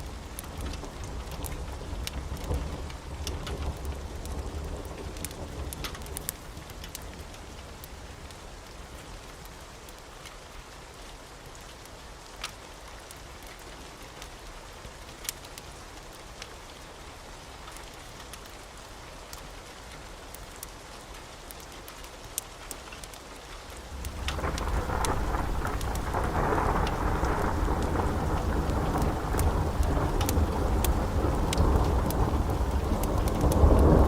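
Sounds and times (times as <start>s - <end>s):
fire crackling pops: 0.0s - 8.0s, 21.4s - 34.0s.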